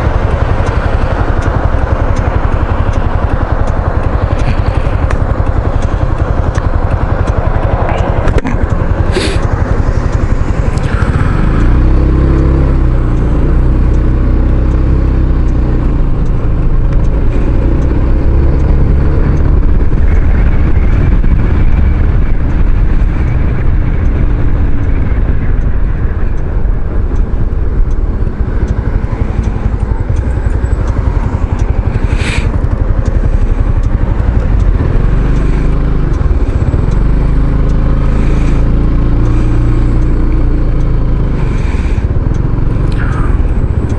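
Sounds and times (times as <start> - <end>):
scooter engine running: 0.0 - 43.9
wind rumble on microphone: 0.0 - 43.9
sharp click: 42.0 - 43.9.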